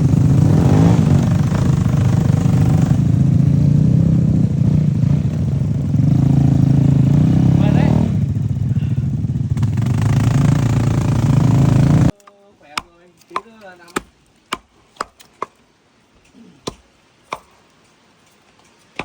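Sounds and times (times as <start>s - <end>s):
vehicle engine running loudly: 0.0s - 12.1s.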